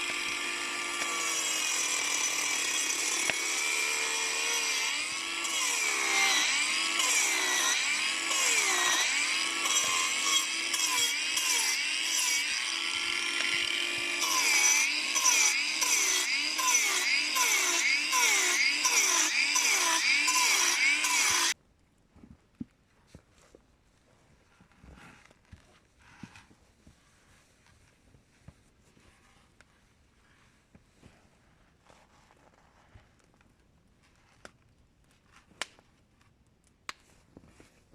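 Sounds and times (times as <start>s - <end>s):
hand saw cutting wood: 0.0s - 21.6s.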